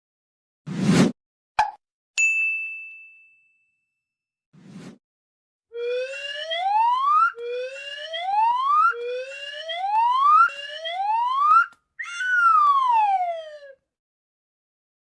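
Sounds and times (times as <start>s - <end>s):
gliding whistle sound effect: 5.8s - 13.8s.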